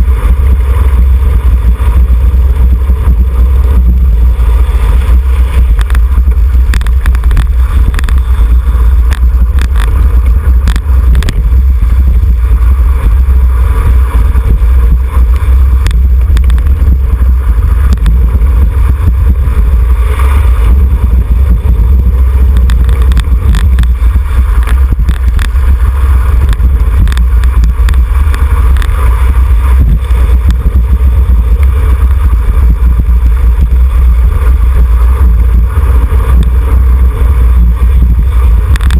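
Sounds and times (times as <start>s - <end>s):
wind buffeting microphone: 0.0s - 38.9s
small clicks: 5.0s - 12.3s, 15.2s - 17.0s, 22.4s - 29.3s, 35.2s - 36.8s, 37.9s - 38.9s.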